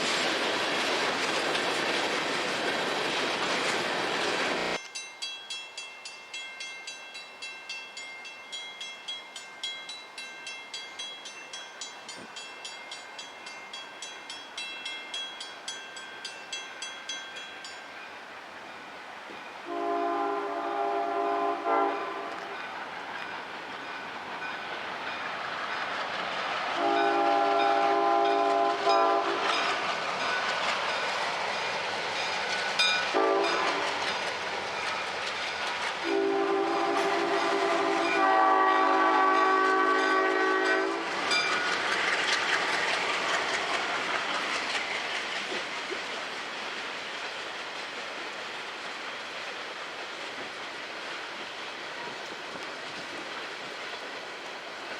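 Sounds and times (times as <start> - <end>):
rumble of approaching train: 0.0 - 54.9
diesel locomotive horn: 19.6 - 22.6, 26.8 - 29.6, 33.1 - 34.0, 36.0 - 41.2.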